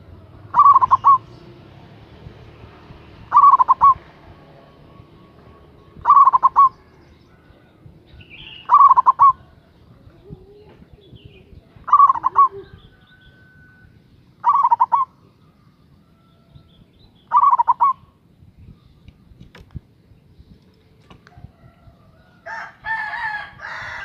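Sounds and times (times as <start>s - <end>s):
dove cooing: 0.0s - 1.7s, 2.9s - 15.7s, 17.2s - 18.2s.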